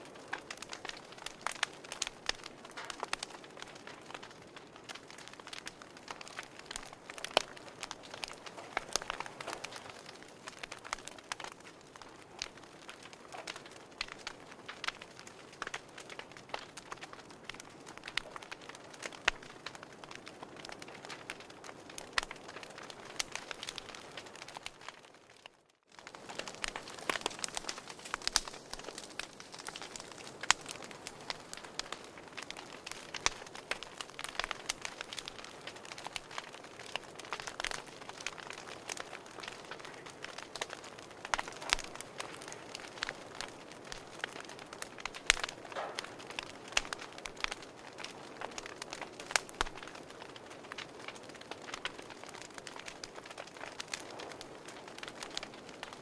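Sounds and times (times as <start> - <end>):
wood fire crackling: 0.0 - 56.0
hiss of burning: 26.1 - 36.0.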